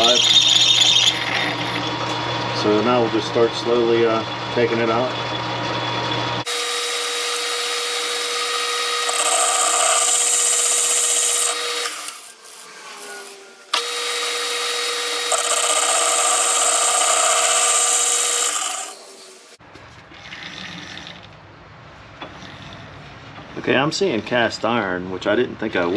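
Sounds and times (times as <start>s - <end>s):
metal lathe cutting: 0.0s - 19.6s.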